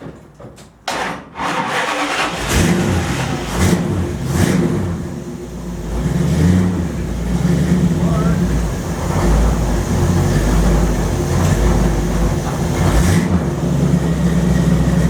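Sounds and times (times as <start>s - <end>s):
engine starter cranking: 0.9s - 4.9s
engine revving: 1.4s - 15.0s.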